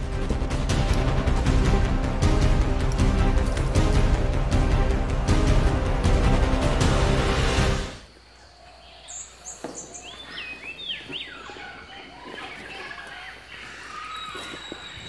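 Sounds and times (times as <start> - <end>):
background music: 0.0 - 8.1
birds chirping: 8.0 - 15.0.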